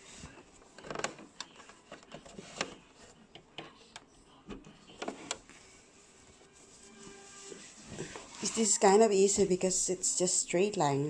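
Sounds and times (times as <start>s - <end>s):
fabric rustling: 5.1s - 10.0s.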